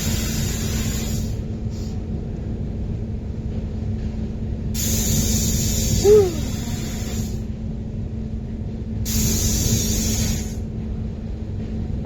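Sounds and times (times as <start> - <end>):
hiss of released air: 0.0 - 2.0, 4.8 - 7.4, 9.1 - 10.6
ride machinery humming: 5.1 - 7.2.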